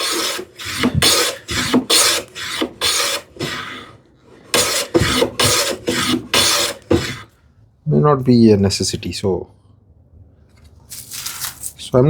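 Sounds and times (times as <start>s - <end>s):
hand plane rasping on wood: 0.0s - 7.3s.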